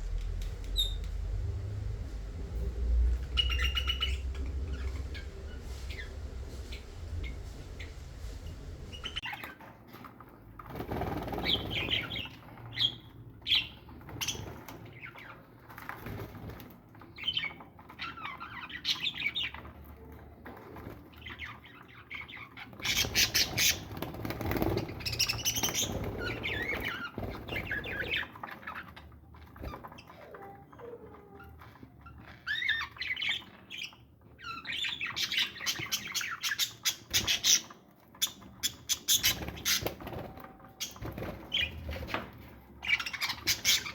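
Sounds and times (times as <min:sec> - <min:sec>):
wings flapping: 0:00.0 - 0:09.2, 0:10.6 - 0:12.2, 0:22.8 - 0:28.2
parrots chirping and squawking: 0:03.1 - 0:09.5, 0:21.2 - 0:43.9.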